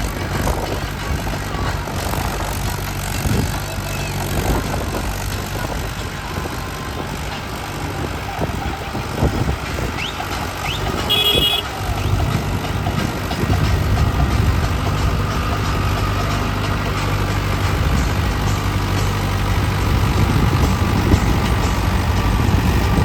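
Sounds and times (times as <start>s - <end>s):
diesel tractor engine running: 0.0s - 23.0s.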